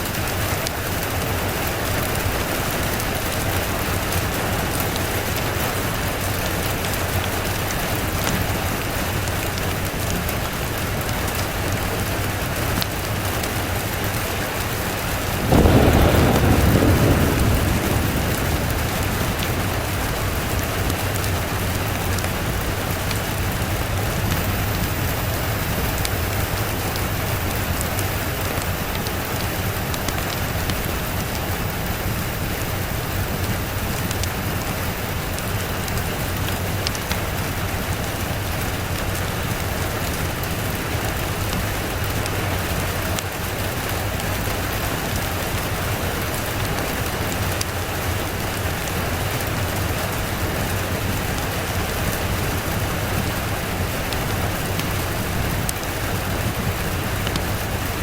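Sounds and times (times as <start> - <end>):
rain hissing on a surface: 0.0 - 58.0
raindrop ticks: 0.0 - 58.0.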